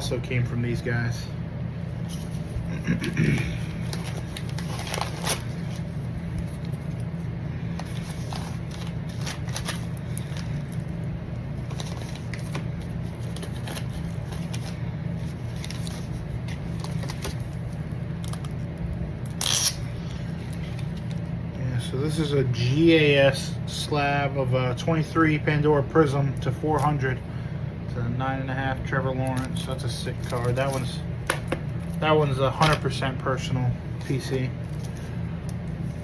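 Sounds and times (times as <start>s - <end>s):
steady low hum: 0.0s - 36.0s
card packaging rustling: 1.9s - 21.4s, 29.2s - 36.0s
plastic crinkle: 3.4s - 18.7s.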